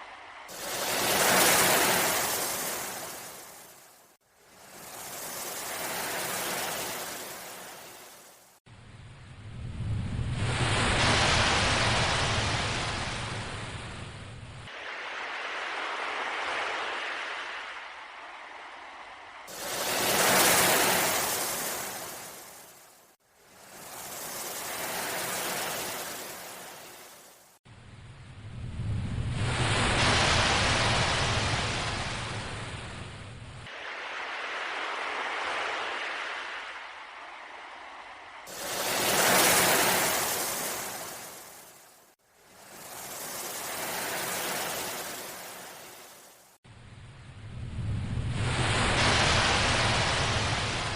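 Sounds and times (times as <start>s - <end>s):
ocean waves washing in: 0.0s - 50.9s.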